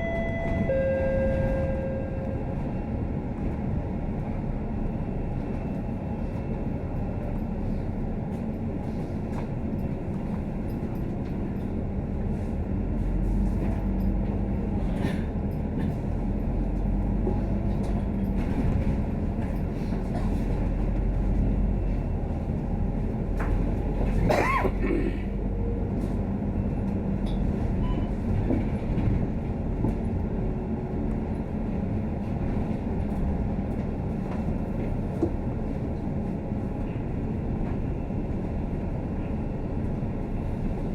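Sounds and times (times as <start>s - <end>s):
heavy low drone: 0.0s - 4.8s
bus engine and road rumble: 0.0s - 40.9s.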